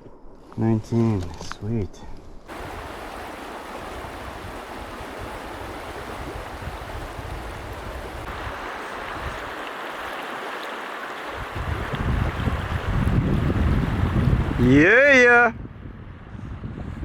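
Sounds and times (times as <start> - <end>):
river current rushing: 2.5 - 14.8.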